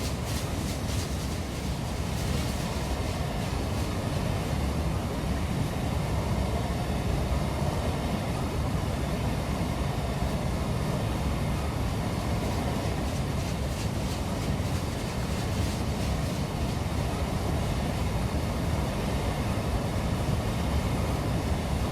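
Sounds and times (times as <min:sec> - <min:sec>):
train wheels rumbling on rail: 0:00.0 - 0:05.9, 0:11.1 - 0:21.9.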